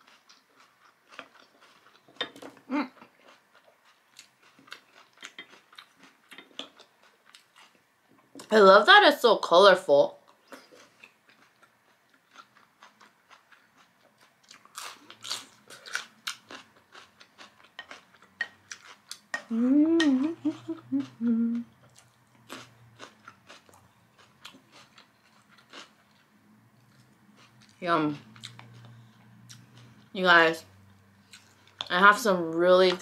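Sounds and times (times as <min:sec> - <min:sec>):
chewing salad with wet crunches: 0:00.0 - 0:07.8, 0:10.2 - 0:33.0
person humming mmm: 0:19.4 - 0:21.8.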